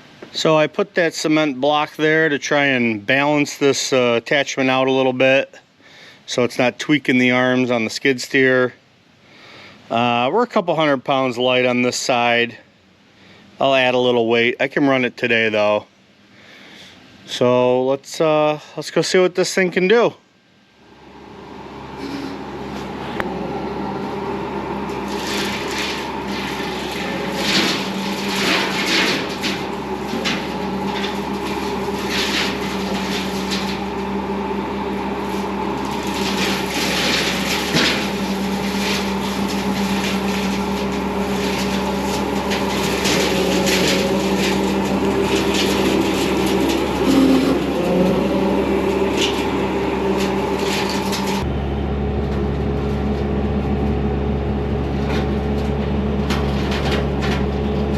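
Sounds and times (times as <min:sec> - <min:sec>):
diesel engine running: 0:00.0 - 0:06.8, 0:20.8 - 0:57.9
branches cracking and snapping: 0:24.9 - 0:51.4.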